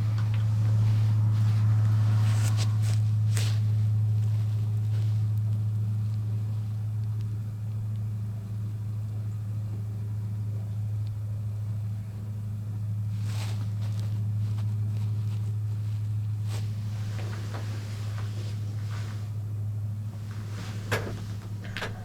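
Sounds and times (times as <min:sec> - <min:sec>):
brief rustle: 0:00.0 - 0:04.1, 0:13.2 - 0:19.4, 0:20.0 - 0:22.0
steady low hum: 0:00.0 - 0:22.0.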